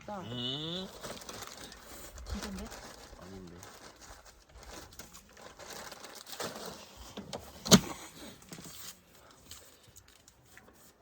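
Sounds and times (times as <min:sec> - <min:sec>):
rustling and handling noise: 0:00.8 - 0:11.0.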